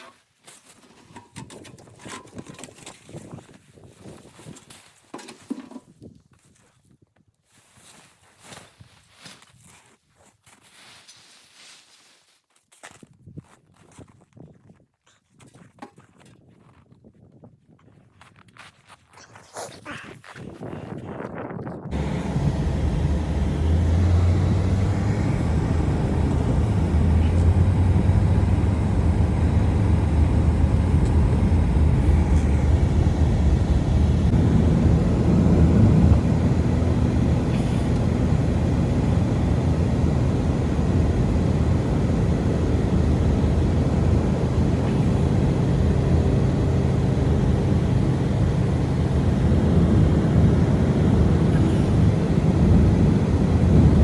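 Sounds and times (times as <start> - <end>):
low droning rumble: 21.9 - 54.0.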